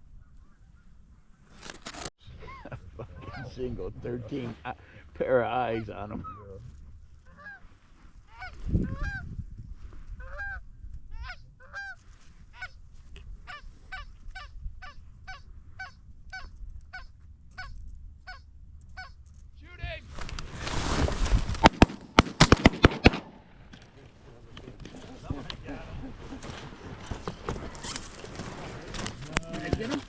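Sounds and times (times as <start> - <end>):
goose honking: 7.2 - 7.6, 8.3 - 9.2, 10.2 - 10.6, 13.5 - 19.2
loud rustle: 20.0 - 23.2, 23.8 - 30.0.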